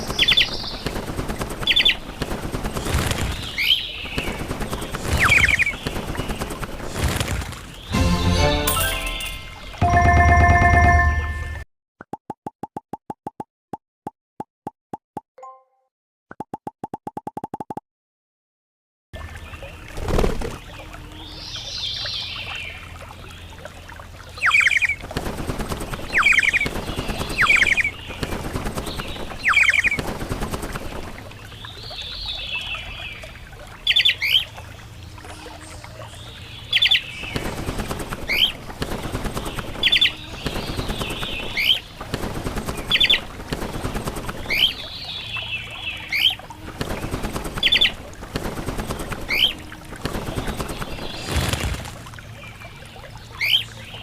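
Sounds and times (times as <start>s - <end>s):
harsh scratchy bird calls: 0.0s - 8.0s, 24.4s - 31.0s, 36.7s - 52.1s
birds chirping: 0.0s - 11.5s, 25.6s - 30.1s, 30.7s - 54.0s.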